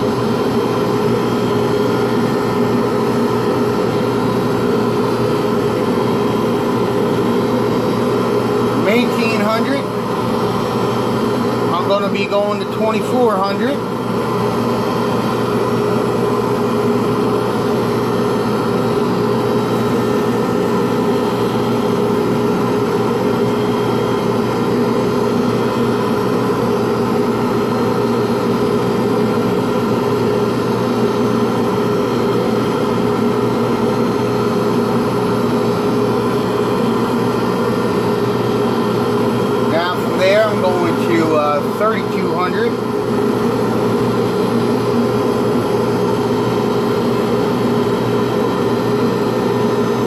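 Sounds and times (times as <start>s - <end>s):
lathe humming: 0.0s - 50.0s.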